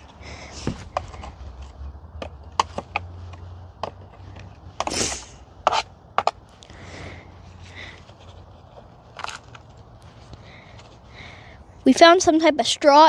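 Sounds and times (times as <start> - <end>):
scrape on plastic: 4.2 - 6.4.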